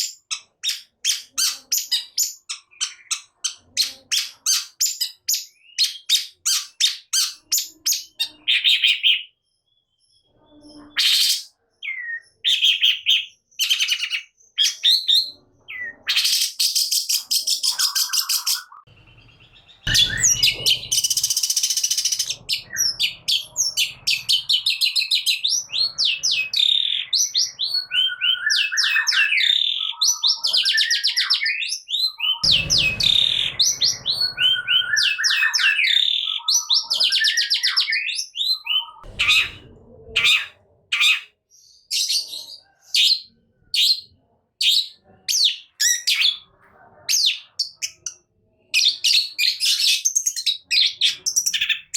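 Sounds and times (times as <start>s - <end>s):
shrike singing: 17.5s - 40.5s.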